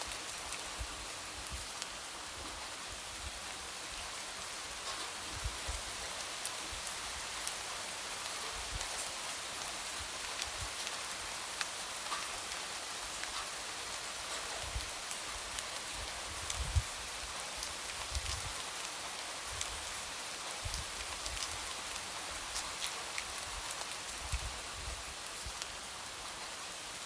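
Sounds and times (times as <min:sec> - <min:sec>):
light rain falling: 0:00.0 - 0:27.0.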